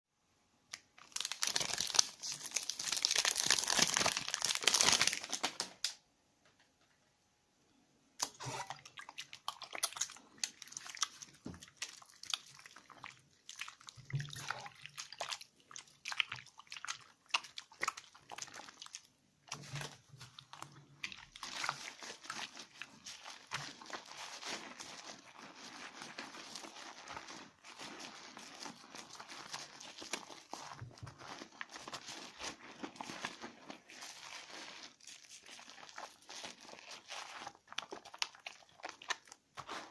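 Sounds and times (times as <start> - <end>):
soap lathering in hands: 8.7 - 39.9.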